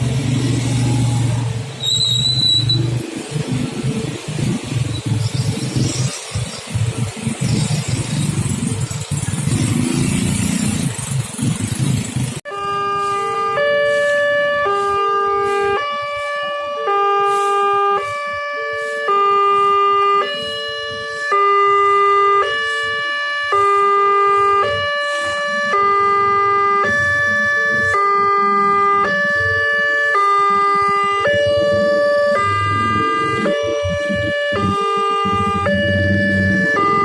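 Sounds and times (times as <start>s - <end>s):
road traffic noise: 0.0s - 37.0s
level crossing electronic alarm: 12.5s - 37.0s.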